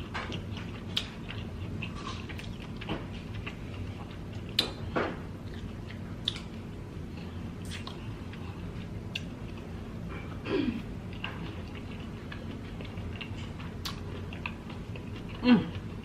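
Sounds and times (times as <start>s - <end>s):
close chewing: 0.0s - 4.8s, 11.0s - 16.0s.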